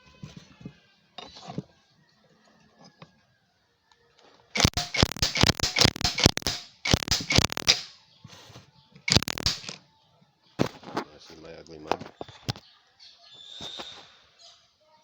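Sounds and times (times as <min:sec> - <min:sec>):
ratchet clicking rapidly: 0:04.6 - 0:07.9, 0:09.1 - 0:09.8.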